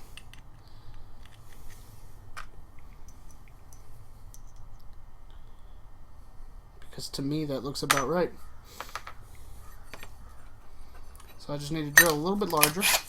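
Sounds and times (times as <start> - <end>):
low steady hum: 0.0 - 13.0
small metal parts clicking: 12.0 - 13.0.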